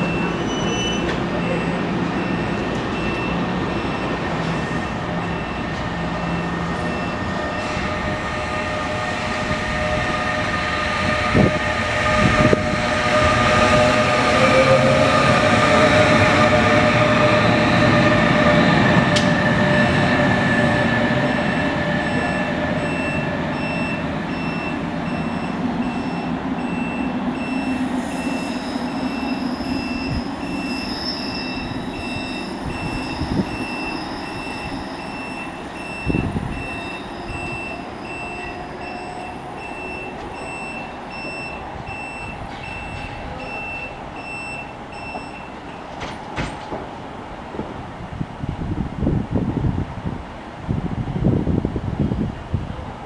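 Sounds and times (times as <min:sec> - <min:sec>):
train rumble and rail noise: 0:00.0 - 0:53.0
wind noise: 0:06.9 - 0:38.9, 0:46.4 - 0:53.0
high pulsing beep: 0:22.0 - 0:45.6.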